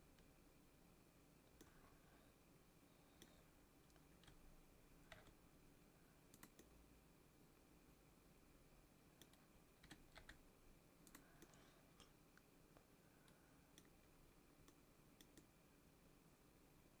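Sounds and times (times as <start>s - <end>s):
faint steady hum: 0.0s - 17.0s
keyboard and mouse clicks: 3.2s - 4.4s, 5.1s - 5.4s, 6.3s - 6.8s, 9.2s - 10.4s, 11.0s - 12.2s, 13.2s - 15.5s.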